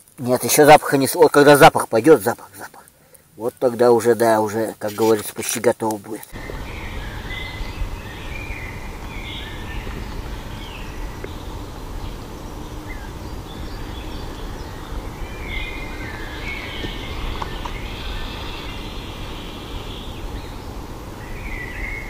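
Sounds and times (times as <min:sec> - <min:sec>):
birds chirping: 0:00.2 - 0:22.0
low outdoor rumble: 0:06.3 - 0:22.0.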